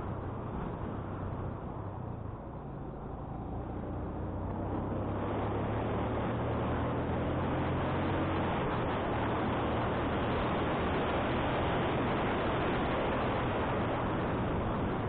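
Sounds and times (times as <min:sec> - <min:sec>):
wind noise on microphone: 0:04.5 - 0:15.0.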